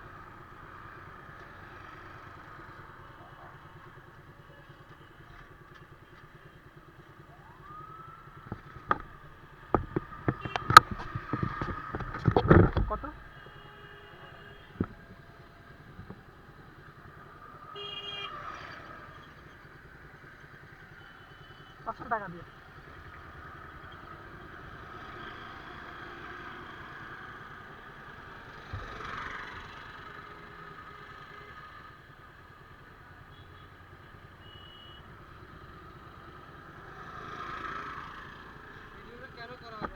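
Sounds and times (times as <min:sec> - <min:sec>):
sharp knocks and clatter: 0:08.5 - 0:13.1.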